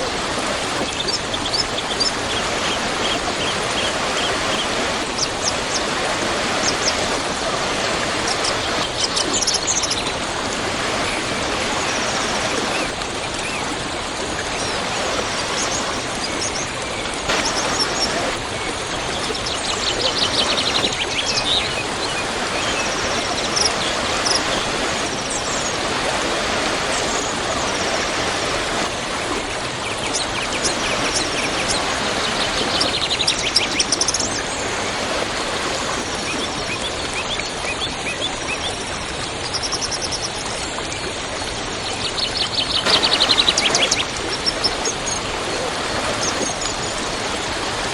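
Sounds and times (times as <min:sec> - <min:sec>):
small birds chirping: 0:00.0 - 0:10.2, 0:10.9 - 0:36.9, 0:42.4 - 0:47.6
waterfall rushing: 0:00.0 - 0:36.7, 0:42.8 - 0:47.9.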